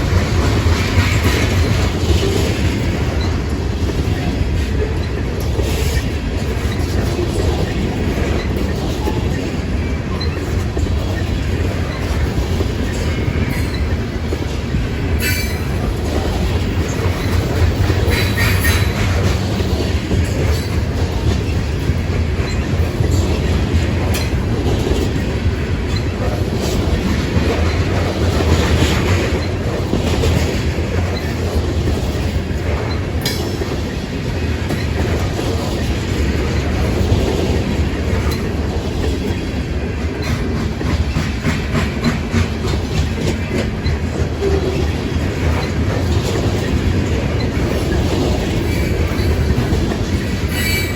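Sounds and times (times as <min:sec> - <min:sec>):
clacking over rail joints: 0:00.0 - 0:50.9
train wheels rumbling on rail: 0:00.0 - 0:50.9
wheel squeals: 0:50.5 - 0:50.9.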